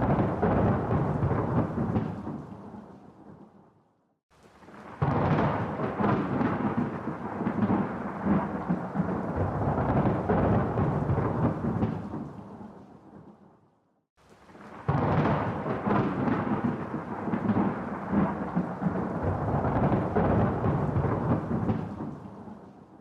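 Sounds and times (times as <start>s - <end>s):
rolling thunder: 0.0s - 3.4s, 4.8s - 12.8s, 14.7s - 22.8s.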